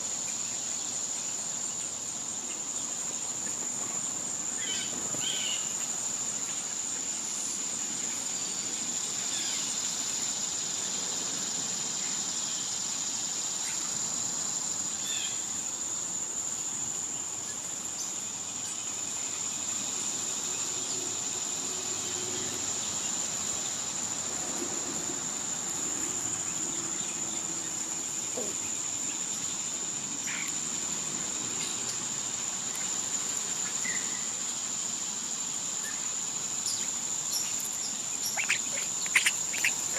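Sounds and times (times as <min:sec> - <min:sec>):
insects droning: 0:00.0 - 0:39.9
bird chirps: 0:36.7 - 0:39.9.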